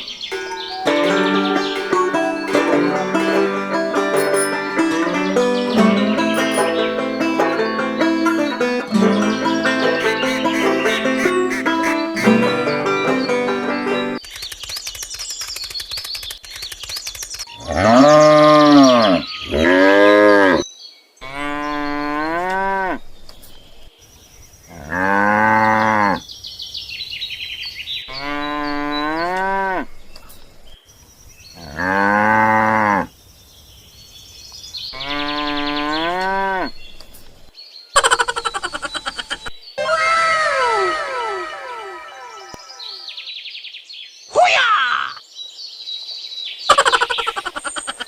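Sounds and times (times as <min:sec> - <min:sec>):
cattle mooing: 0:17.6 - 0:20.6.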